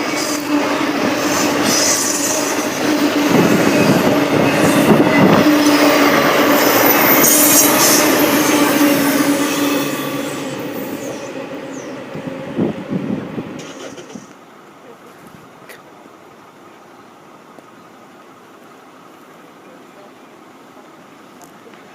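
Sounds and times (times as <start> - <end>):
freight train wheels rumbling: 0.0 - 21.9
high-pitched wheel squeals: 1.3 - 12.3.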